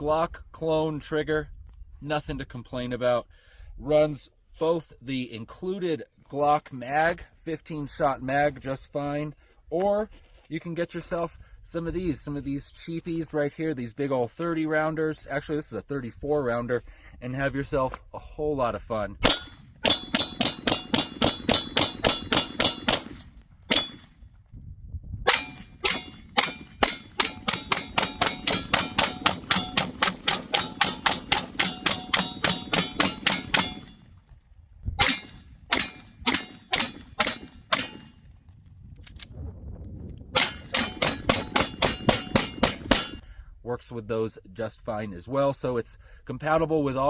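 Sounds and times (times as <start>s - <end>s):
pistol shots: 19.2s - 24.1s, 25.3s - 34.0s, 35.0s - 38.1s, 40.4s - 43.2s.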